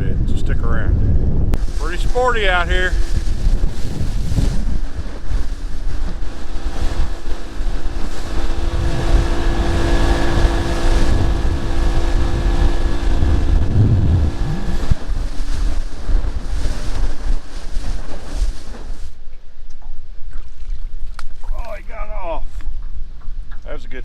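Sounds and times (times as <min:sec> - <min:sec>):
wind buffeting microphone: 0:00.0 - 0:24.0
boat motor running: 0:05.6 - 0:16.6.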